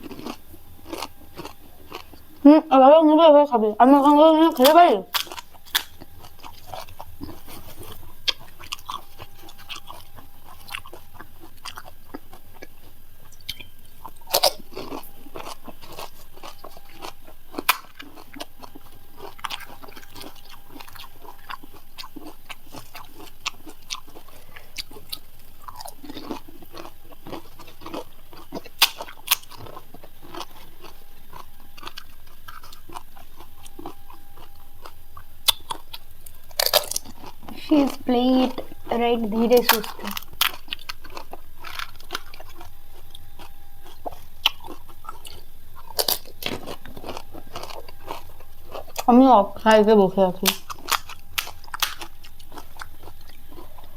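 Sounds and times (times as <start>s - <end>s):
crunching and chewing food: 0.0s - 53.9s.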